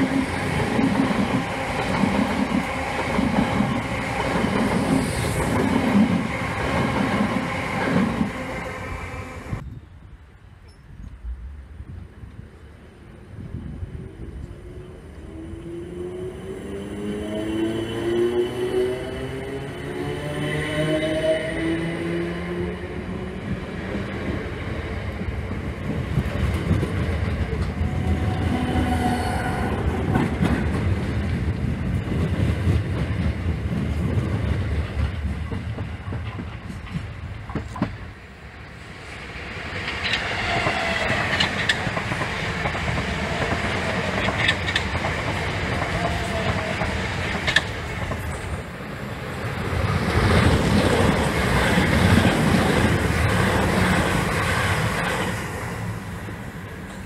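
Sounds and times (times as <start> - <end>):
electric train rumbling past: 0.0 - 9.7, 10.6 - 57.0
train wheels whining and squealing: 14.3 - 23.3, 27.4 - 30.8, 39.5 - 48.8
wheels clattering over rail joints: 39.8 - 48.6.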